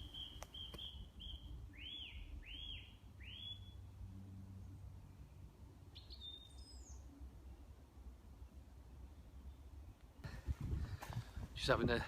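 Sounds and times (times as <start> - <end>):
complex bird call: 0.0 - 3.8
bird chirps: 0.0 - 3.9, 5.9 - 7.1.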